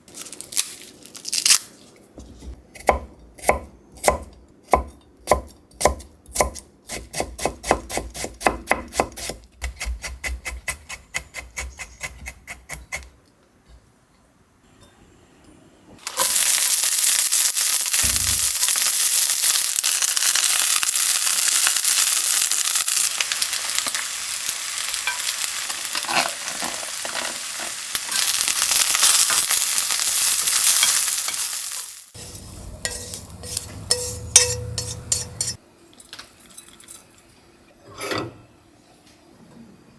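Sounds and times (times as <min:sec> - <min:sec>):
knife chopping on cutting board: 0:02.8 - 0:12.7
food sizzling in frying pan: 0:16.0 - 0:35.6.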